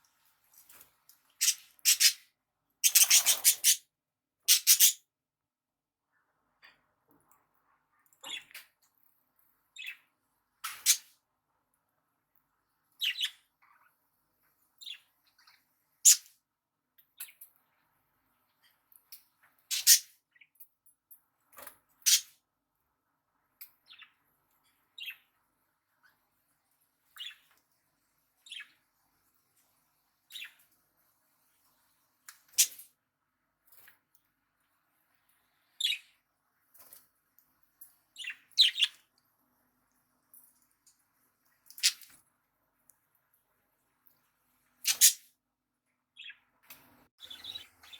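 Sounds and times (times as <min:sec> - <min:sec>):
budgerigars chirping: 0:01.4 - 0:02.2, 0:02.8 - 0:03.8, 0:04.5 - 0:05.0, 0:38.2 - 0:38.9, 0:47.2 - 0:47.9.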